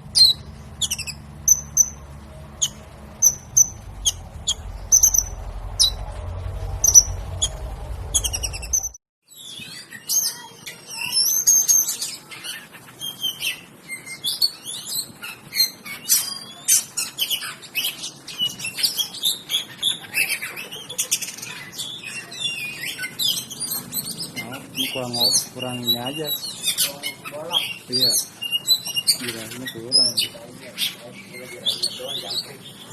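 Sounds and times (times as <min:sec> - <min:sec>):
low hum: 0:00.0 - 0:09.0
songbird chirping: 0:00.0 - 0:32.9
songbird singing varied song: 0:00.1 - 0:06.1, 0:06.7 - 0:09.8, 0:21.8 - 0:32.9.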